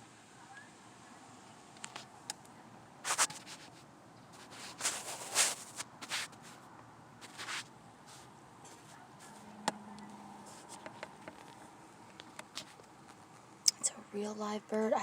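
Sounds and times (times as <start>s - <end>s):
scratchy rustling: 3.0s - 9.6s, 10.4s - 11.7s.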